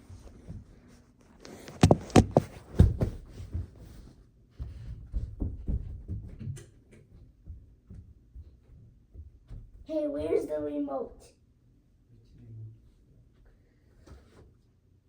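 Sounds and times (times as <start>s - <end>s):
low thumps and bumps: 4.6s - 6.6s.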